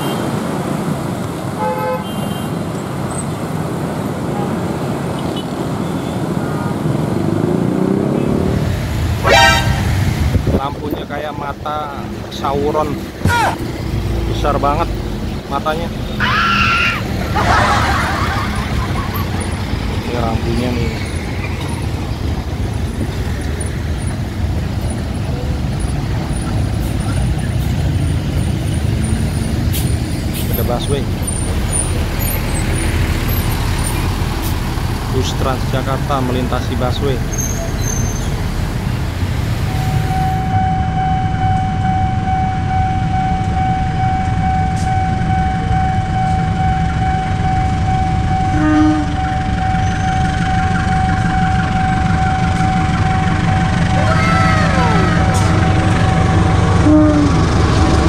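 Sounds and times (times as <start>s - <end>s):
train horn blast: 1.6s - 2.4s, 9.2s - 10.1s, 48.5s - 49.4s, 56.7s - 57.6s
car and motorbike engines passing: 2.5s - 40.7s, 45.2s - 58.0s
low rumble of locomotive: 8.6s - 58.0s
level crossing alarm pulsing: 39.6s - 58.0s.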